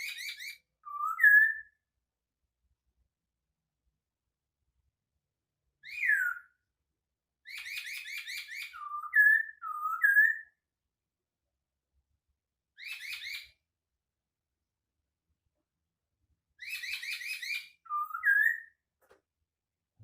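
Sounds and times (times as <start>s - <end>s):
bird whistling song: 0.0s - 1.8s, 5.8s - 6.7s, 7.4s - 10.6s, 12.7s - 13.6s, 16.5s - 18.9s.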